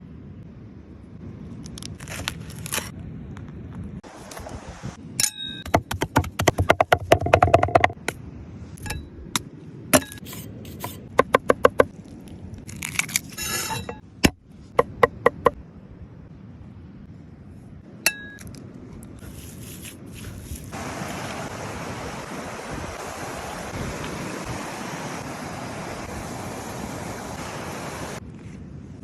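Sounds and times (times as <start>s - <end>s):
cookware clinking and scraping: 13.4s - 14.0s.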